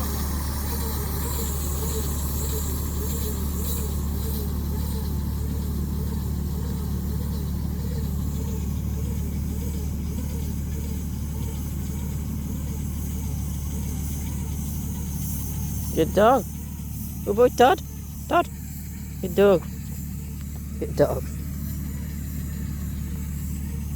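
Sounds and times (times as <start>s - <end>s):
faint wavering whine: 0.0s - 23.9s
tractor engine droning: 0.0s - 23.9s.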